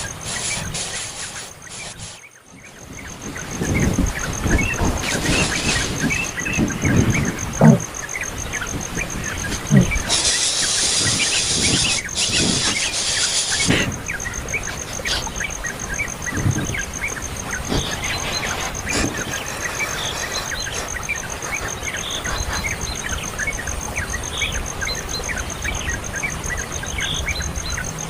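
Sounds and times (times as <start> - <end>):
loud hiss: 0.0 - 2.3, 4.5 - 6.6, 9.7 - 15.4, 17.3 - 22.8
small birds chirping: 0.0 - 28.0.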